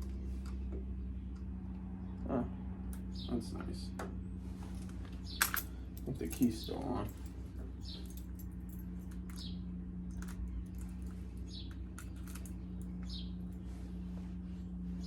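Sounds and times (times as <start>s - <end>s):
steady low hum: 0.0s - 15.0s
bird chirping: 2.0s - 3.8s, 7.7s - 8.2s, 10.3s - 11.9s, 12.6s - 13.8s.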